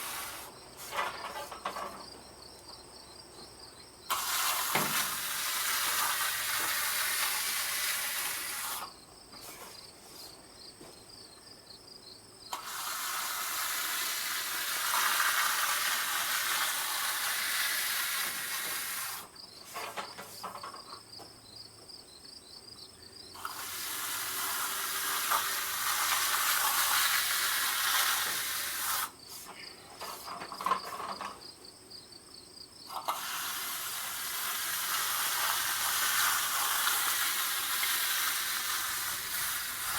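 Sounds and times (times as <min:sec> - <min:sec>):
loud hissing: 0:00.0 - 0:01.4, 0:04.1 - 0:10.3, 0:12.5 - 0:20.6, 0:23.4 - 0:30.4, 0:32.9 - 0:39.9.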